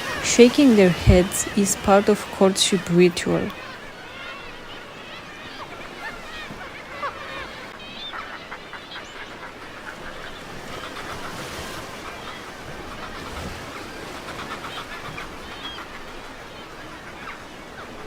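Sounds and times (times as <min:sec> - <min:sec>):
gannets calling: 0:00.0 - 0:03.9
surf: 0:00.0 - 0:18.0
wind: 0:00.0 - 0:18.0.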